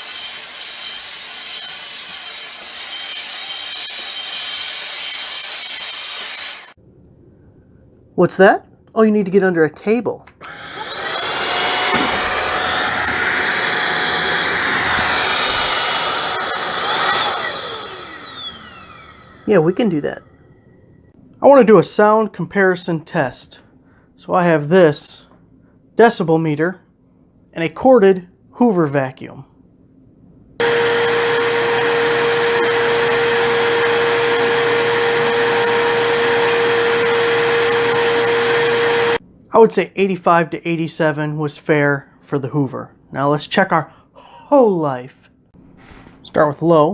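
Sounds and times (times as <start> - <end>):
vacuum motor whining: 10.4 - 19.6, 30.6 - 39.2.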